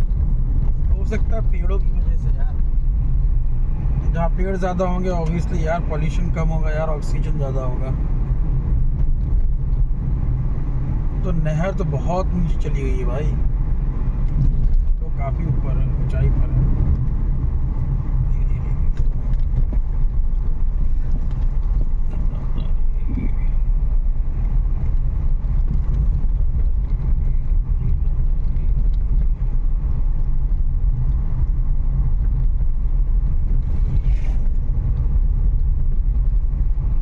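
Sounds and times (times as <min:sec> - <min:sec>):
road and engine rumble in car: 0:00.0 - 0:37.0.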